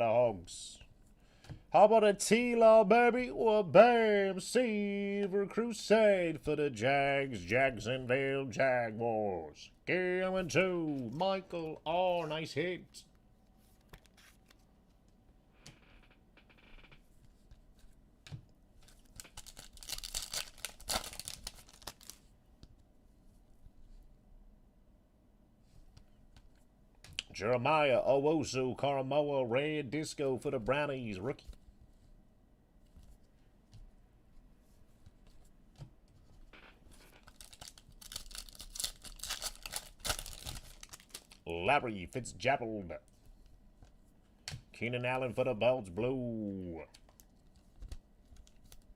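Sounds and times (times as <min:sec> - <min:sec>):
wrapper tearing and crinkling: 0:18.9 - 0:22.3, 0:37.0 - 0:41.5.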